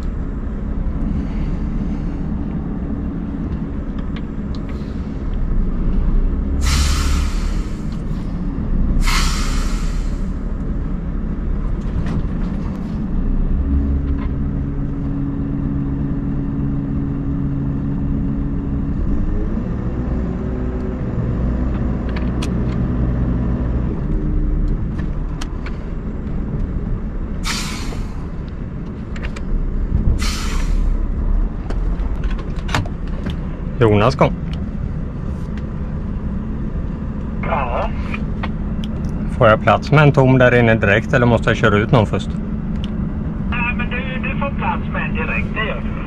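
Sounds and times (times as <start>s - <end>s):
diesel truck engine running: 0.0s - 46.0s
compressed air hissing: 6.6s - 8.4s, 9.0s - 10.4s, 27.4s - 28.3s, 30.2s - 31.0s.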